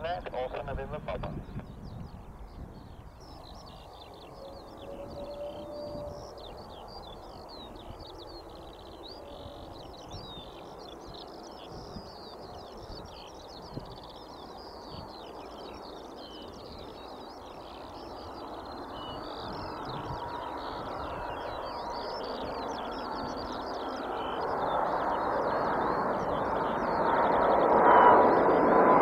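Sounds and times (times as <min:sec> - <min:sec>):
low outdoor rumble: 0:00.0 - 0:10.4
small birds chirping: 0:00.0 - 0:28.6
jet airliner engine whine: 0:00.0 - 0:29.0.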